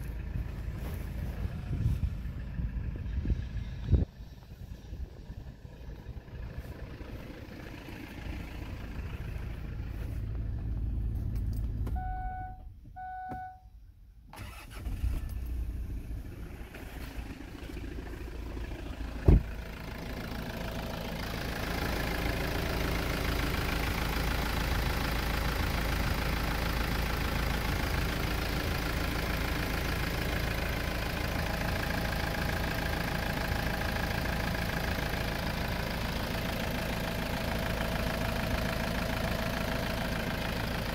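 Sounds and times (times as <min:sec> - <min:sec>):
diesel engine idling: 0:00.0 - 0:40.9
short beeps: 0:11.9 - 0:13.8.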